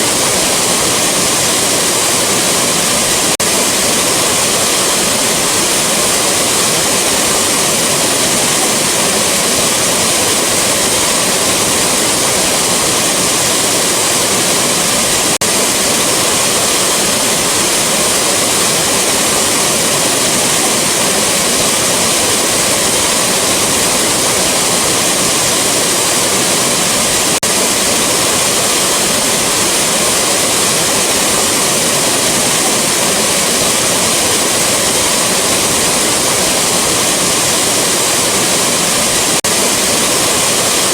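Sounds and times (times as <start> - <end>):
rushing waterfall: 0.0 - 40.9.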